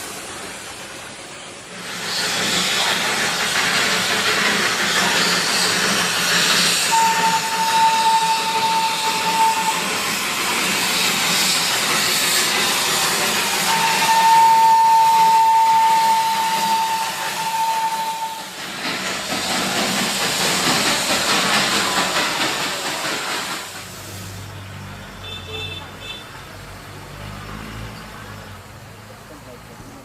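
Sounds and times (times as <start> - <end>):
loud steam hiss: 0.0 - 30.0
train whistle blast: 6.8 - 10.2, 13.4 - 18.6.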